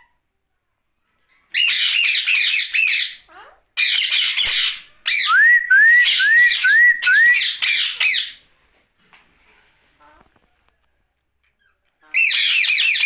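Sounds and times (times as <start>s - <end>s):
parakeet screeching: 1.5s - 5.3s, 6.5s - 8.4s, 12.0s - 13.0s.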